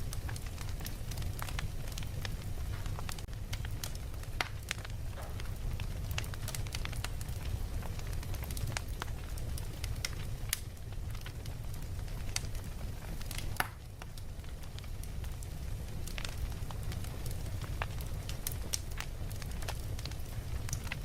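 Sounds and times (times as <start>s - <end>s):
low fire rumble: 0.0s - 21.0s
wood fire crackling: 0.0s - 21.0s.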